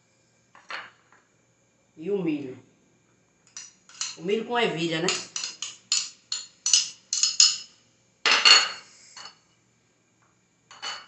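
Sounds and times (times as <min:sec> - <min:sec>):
spoon clinking against dish: 0:03.5 - 0:04.3, 0:05.1 - 0:07.7.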